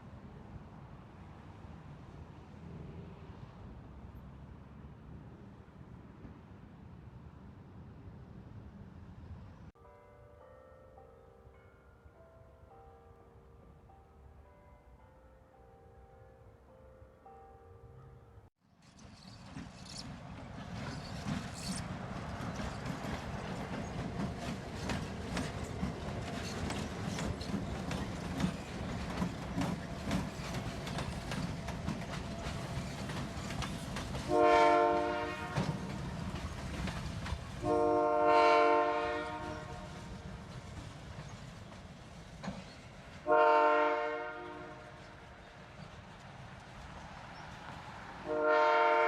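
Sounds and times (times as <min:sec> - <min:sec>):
freight train rumbling: 0:18.7 - 0:49.0
locomotive air horn blasts: 0:34.3 - 0:35.8, 0:37.6 - 0:39.9, 0:43.2 - 0:45.1, 0:48.3 - 0:49.0.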